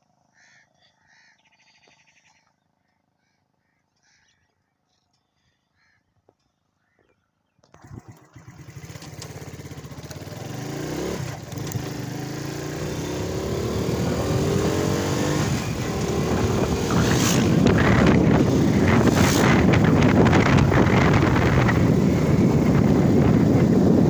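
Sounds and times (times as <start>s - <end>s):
motorcycle engine accelerating: 7.6s - 24.0s
wind on microphone: 13.1s - 24.0s.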